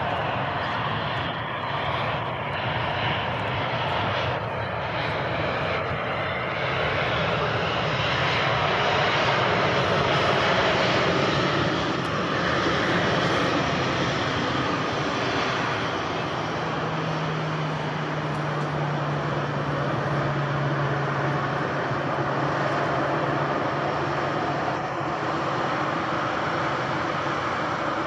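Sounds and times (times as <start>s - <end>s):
jet airliner engines: 0.0s - 28.0s.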